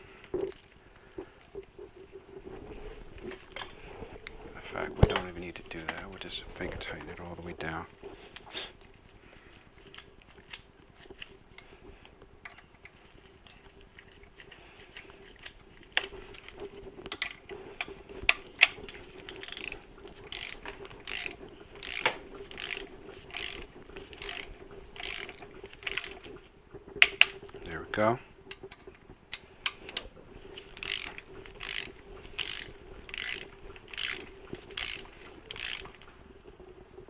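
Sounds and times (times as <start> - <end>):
hand ratchet clicking: 19.3 - 26.3, 30.8 - 36.0.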